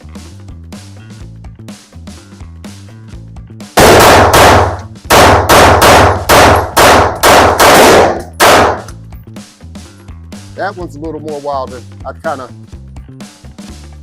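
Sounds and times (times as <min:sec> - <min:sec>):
rapid pistol shots: 0:03.8 - 0:08.9.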